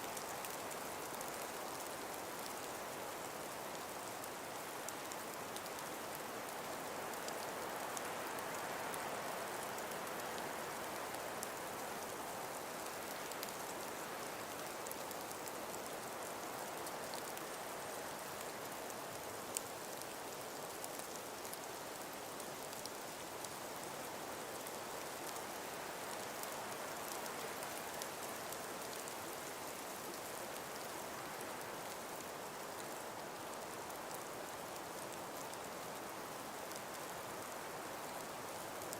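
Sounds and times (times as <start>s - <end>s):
breeze through trees: 0.0s - 38.9s
faint ticks: 4.8s - 23.9s.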